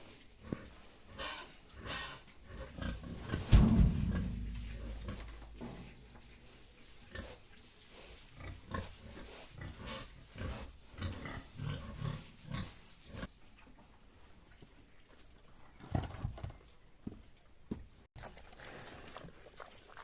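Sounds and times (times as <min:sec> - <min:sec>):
pigs grunting: 0:00.4 - 0:06.0, 0:08.3 - 0:13.3.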